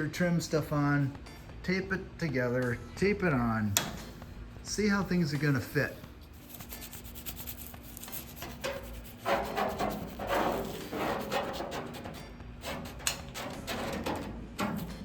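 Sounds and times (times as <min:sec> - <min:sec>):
plastic trim rubbing and scraping: 0:07.5 - 0:15.0.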